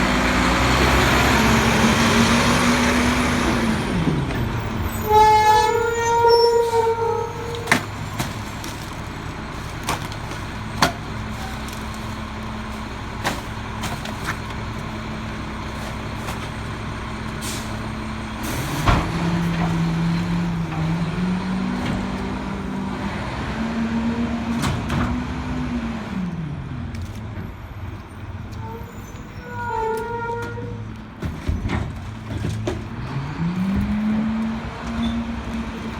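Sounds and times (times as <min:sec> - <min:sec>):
garbage truck diesel engine: 0:00.0 - 0:35.9
knocks and bangs of trash: 0:07.5 - 0:15.0, 0:31.1 - 0:33.0.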